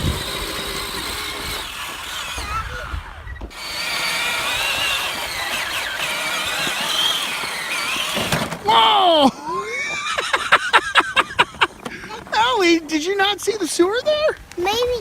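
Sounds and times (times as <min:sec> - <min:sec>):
electric toy tractor motor whining: 0:00.0 - 0:08.6.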